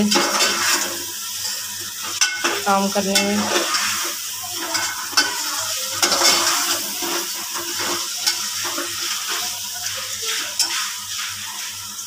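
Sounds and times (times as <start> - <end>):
metal spoon scraping a pot: 0.0 - 9.5
curry sizzling in a pot: 0.0 - 12.0.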